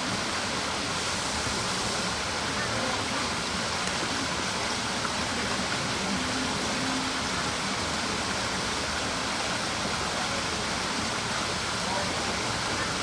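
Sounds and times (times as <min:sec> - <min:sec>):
steady rushing noise: 0:00.0 - 0:11.2.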